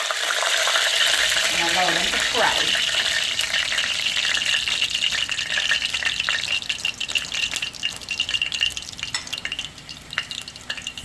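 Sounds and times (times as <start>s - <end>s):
leaves sizzling in hot oil: 0.0s - 11.0s.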